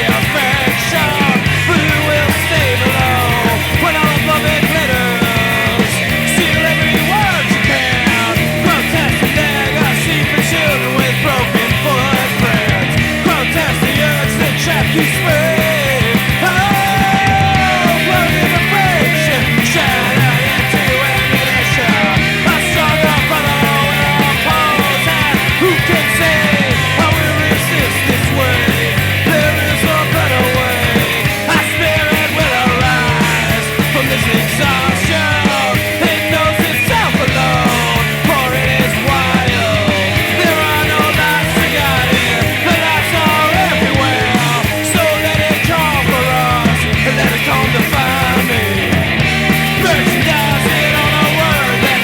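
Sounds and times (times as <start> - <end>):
punk rock band playing: 0.0 - 52.0.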